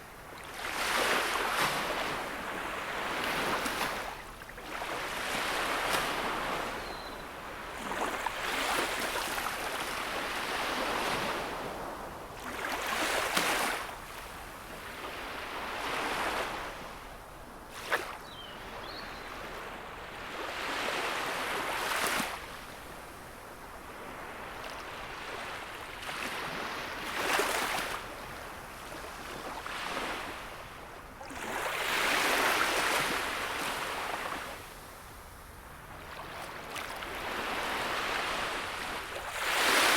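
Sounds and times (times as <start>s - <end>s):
sea waves washing up shore: 36.2s - 39.9s.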